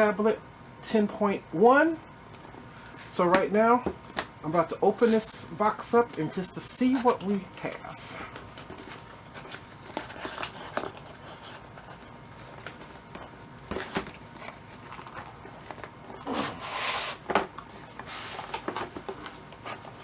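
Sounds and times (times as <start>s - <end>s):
cardboard rustling scrape: 8.2s - 20.0s.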